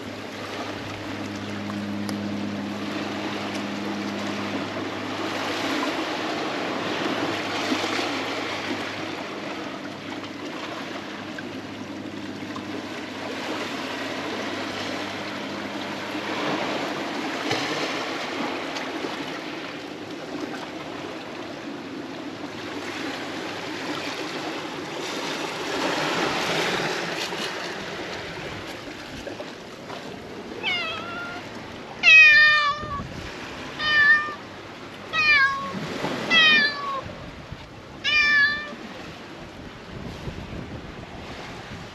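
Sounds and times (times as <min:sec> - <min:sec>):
sea water washing around concrete: 0:00.0 - 0:41.9
cat meowing: 0:30.6 - 0:33.0, 0:33.8 - 0:34.4, 0:35.1 - 0:37.0, 0:38.0 - 0:38.8.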